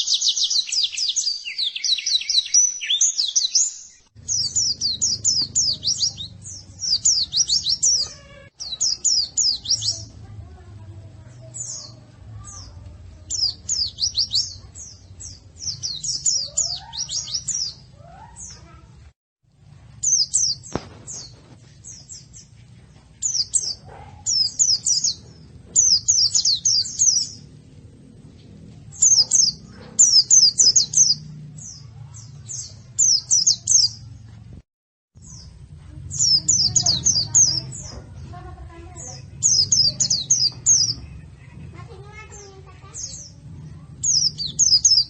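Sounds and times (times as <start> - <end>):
bird twittering: 0.0 - 10.1, 29.0 - 34.0
faint low hum: 40.9 - 44.6.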